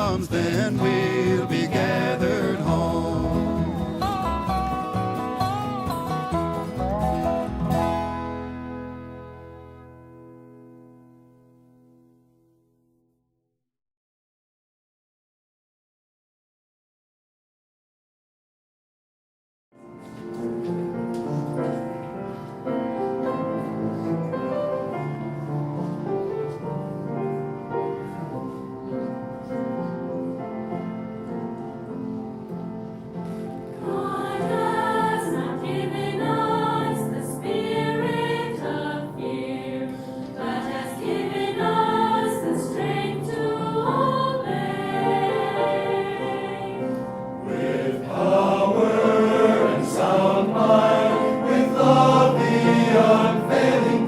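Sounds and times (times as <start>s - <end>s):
choir singing: 0.0s - 4.6s, 33.7s - 54.0s
instrumental gospel music: 0.0s - 10.6s, 20.0s - 54.0s.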